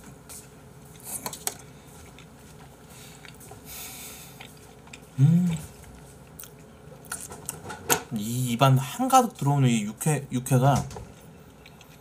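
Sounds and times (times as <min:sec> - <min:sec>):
man chewing wetly: 0:00.8 - 0:07.7, 0:11.1 - 0:12.0
man humming mmm: 0:05.1 - 0:05.7.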